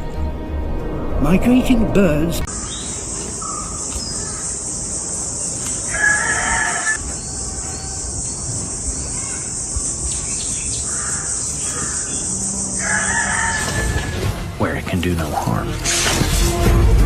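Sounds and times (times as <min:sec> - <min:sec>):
bird calling: 0:02.5 - 0:14.2.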